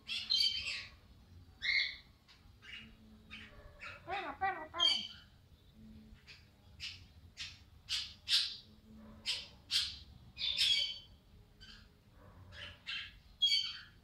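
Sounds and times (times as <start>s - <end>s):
parakeet squawking: 2.6s - 5.3s.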